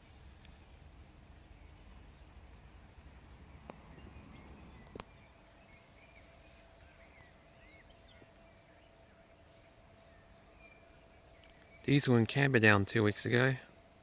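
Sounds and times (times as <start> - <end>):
faint steady hum: 0.0 - 14.0
faint bird chirps: 3.5 - 12.3.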